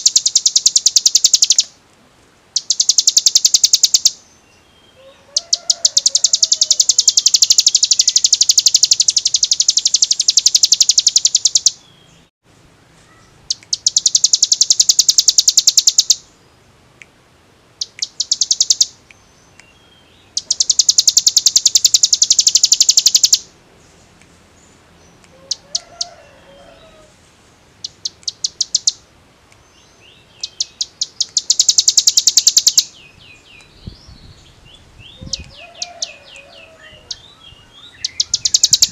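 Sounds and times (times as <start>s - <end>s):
bird singing rattling trill: 0.0s - 1.7s, 2.6s - 12.3s, 13.4s - 16.4s, 17.8s - 23.6s, 27.8s - 29.0s, 29.8s - 38.9s.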